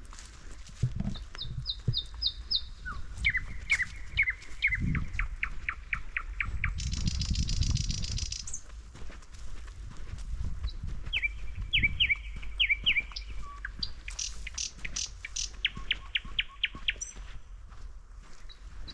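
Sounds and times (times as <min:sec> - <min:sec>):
footsteps on forest floor: 0:00.0 - 0:18.9
birds chirping: 0:01.1 - 0:08.7, 0:10.6 - 0:17.6.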